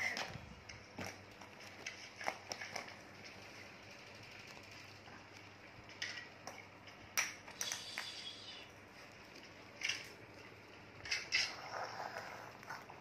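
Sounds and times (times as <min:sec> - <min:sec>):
plastic toys clacking: 0:05.8 - 0:08.3, 0:09.7 - 0:10.2, 0:11.0 - 0:11.6.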